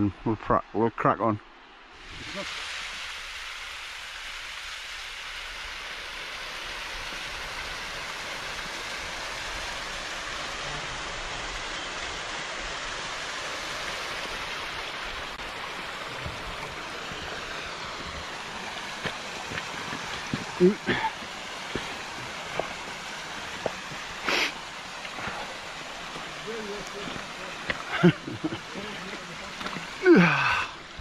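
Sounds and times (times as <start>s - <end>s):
heavy rain and wind: 1.8s - 31.0s.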